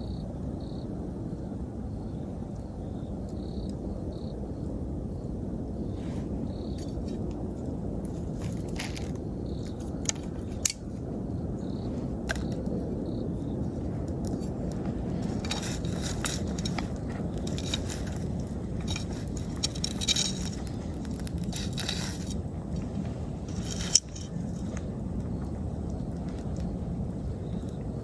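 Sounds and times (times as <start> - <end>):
bonfire crackling: 0.4 - 28.0
low rush of burning: 0.4 - 28.0.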